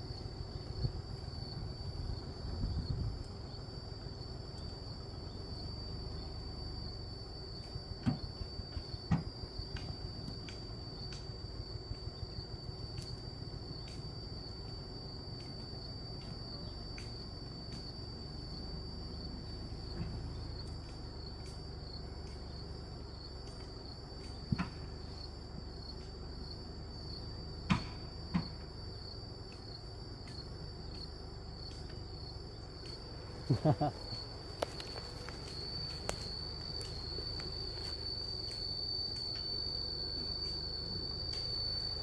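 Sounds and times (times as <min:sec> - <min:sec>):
insect trilling: 0:29.0 - 0:42.0.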